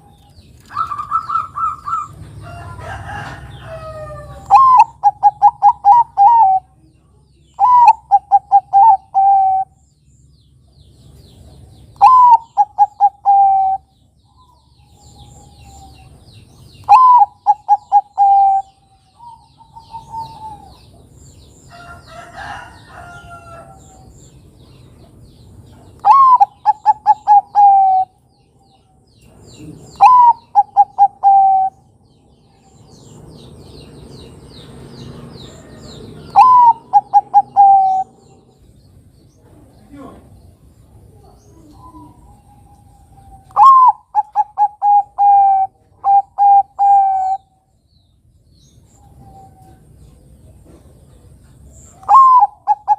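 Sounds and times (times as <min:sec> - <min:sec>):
dove cooing: 0:00.7 - 0:02.2, 0:02.8 - 0:06.8, 0:07.6 - 0:09.8, 0:12.0 - 0:13.9, 0:16.8 - 0:21.0, 0:26.0 - 0:28.2, 0:29.5 - 0:32.0, 0:35.5 - 0:38.6, 0:41.0 - 0:47.5, 0:51.9 - 0:52.9.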